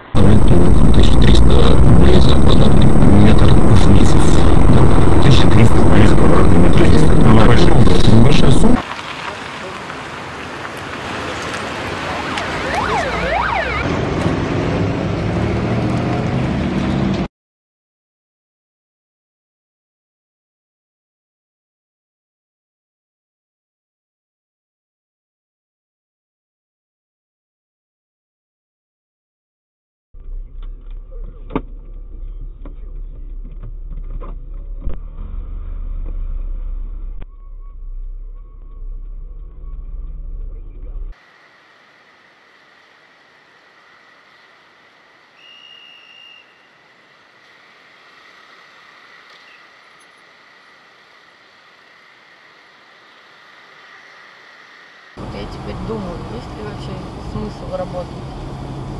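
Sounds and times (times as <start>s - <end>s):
low engine drone: 0.0s - 8.8s, 30.2s - 45.4s, 46.5s - 58.9s
road noise: 0.0s - 17.3s, 30.2s - 58.9s
emergency vehicle siren: 0.2s - 14.6s.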